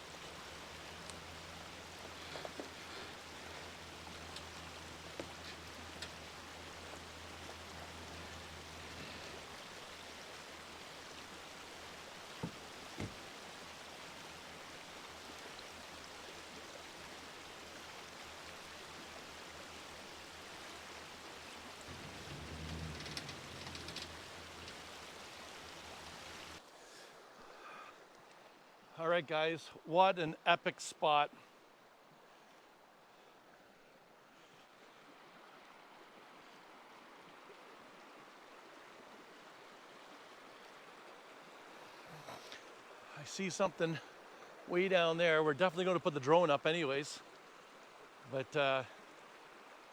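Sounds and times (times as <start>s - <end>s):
steady rushing outdoor noise: 0.0s - 27.9s
low hum: 21.7s - 26.6s.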